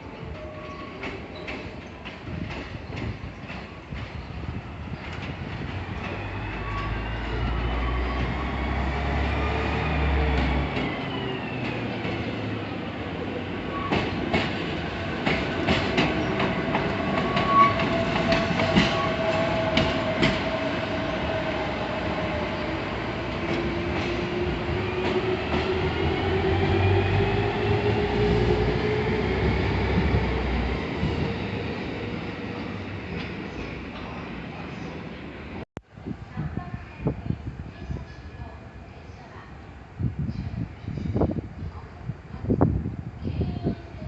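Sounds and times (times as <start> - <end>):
train wheels clicking over rail joints: 13.9 - 20.6.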